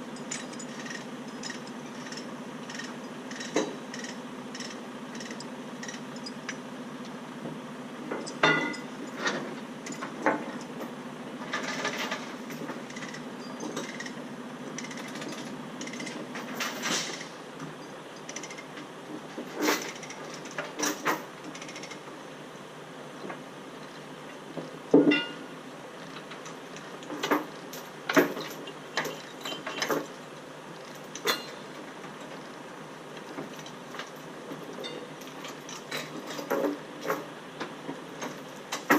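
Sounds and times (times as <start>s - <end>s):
low steady hum: 0.0s - 38.9s
metal chain clanks: 0.1s - 6.6s, 8.1s - 14.2s, 14.8s - 17.3s, 19.5s - 22.0s, 25.0s - 25.5s, 27.1s - 30.2s, 30.8s - 31.7s, 33.4s - 37.3s
ratchet clicks: 0.2s - 6.6s, 13.8s - 14.2s, 14.8s - 16.1s, 18.2s - 18.7s, 21.5s - 22.0s.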